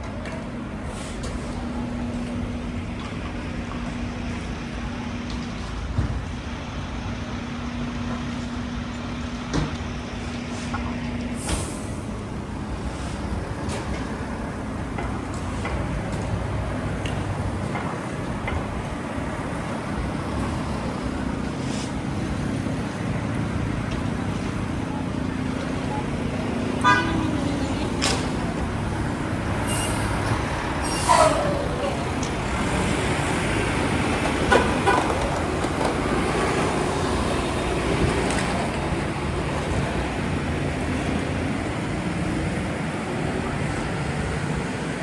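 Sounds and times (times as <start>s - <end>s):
city street traffic: 0.0s - 45.0s
car horns honking: 26.7s - 28.5s
falling squeal-like tone: 29.6s - 32.3s.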